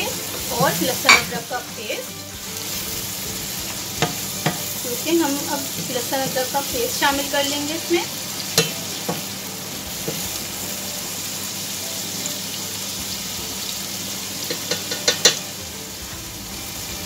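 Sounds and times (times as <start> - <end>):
onions sizzling in oil: 0.0 - 17.0
utensil clicking against pan: 14.5 - 15.4.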